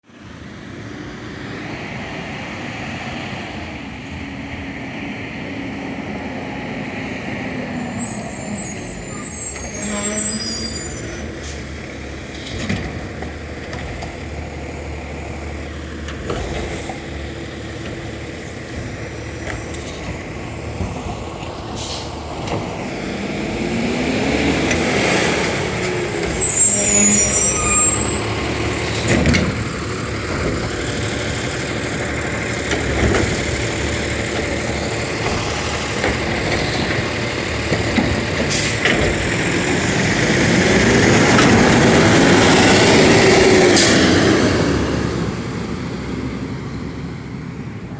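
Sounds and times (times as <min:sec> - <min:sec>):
garbage truck running: 0:03.5 - 0:47.9
air brake hiss: 0:21.7 - 0:22.2.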